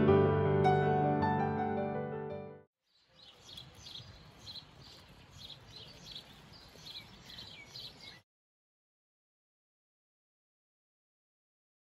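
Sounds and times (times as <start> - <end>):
small birds chirping: 2.8 - 8.2.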